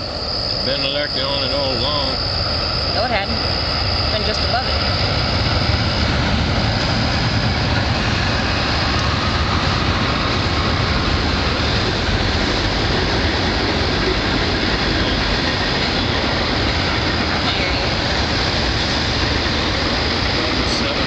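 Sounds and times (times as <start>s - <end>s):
train passing: 0.0s - 21.0s.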